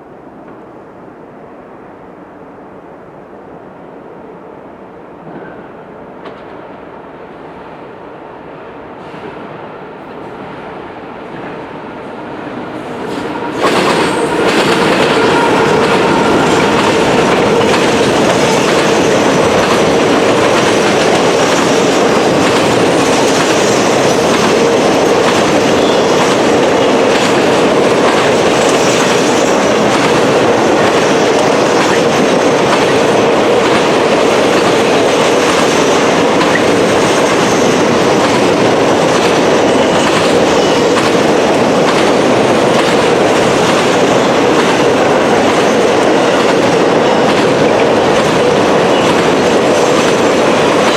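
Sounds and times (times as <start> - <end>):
train wheels clacking over rail joints: 13.0 - 50.9.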